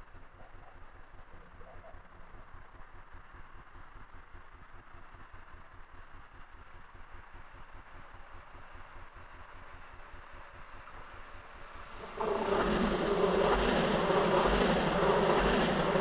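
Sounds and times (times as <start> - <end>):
train approaching on track: 2.2 - 16.0
low throbbing rumble: 11.8 - 16.0.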